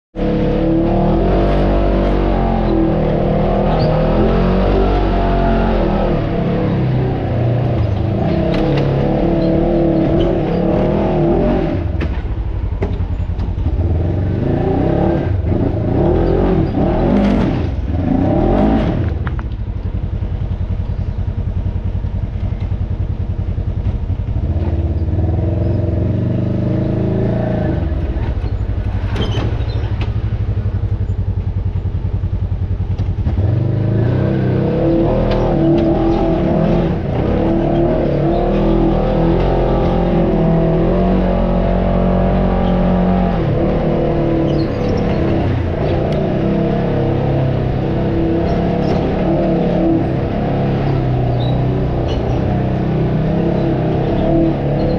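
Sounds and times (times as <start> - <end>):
engine revving: 0.2 - 20.4, 23.5 - 54.9
knocks and clatter: 11.8 - 13.8, 28.0 - 31.8.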